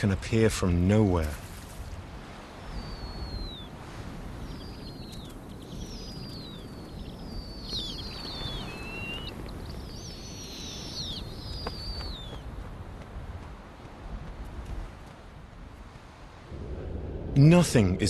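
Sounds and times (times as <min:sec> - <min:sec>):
low wind rumble: 0:00.0 - 0:18.0
birds whistling: 0:02.6 - 0:12.4.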